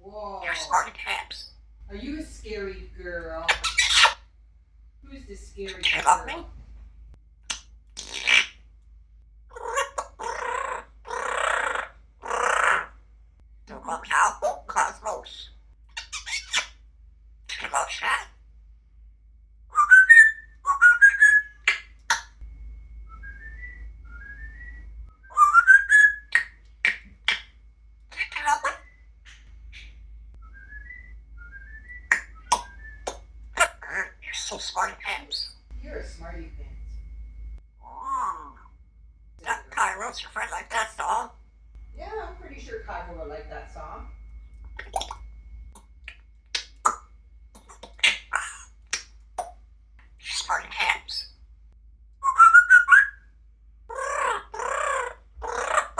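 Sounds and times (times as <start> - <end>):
parrot whistling: 3.5 - 4.2, 13.8 - 16.8, 17.5 - 18.3, 19.7 - 22.4, 23.1 - 27.5, 28.1 - 35.7, 39.4 - 41.4, 44.7 - 45.3, 46.1 - 49.6, 50.2 - 51.4, 52.2 - 53.3, 53.9 - 55.9.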